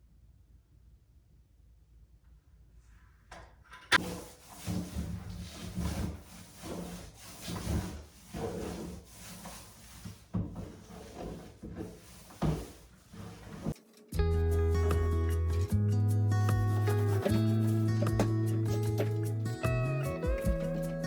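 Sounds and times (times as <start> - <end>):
paintbrush rubbing on wall: 4.0 - 13.8, 16.4 - 21.0.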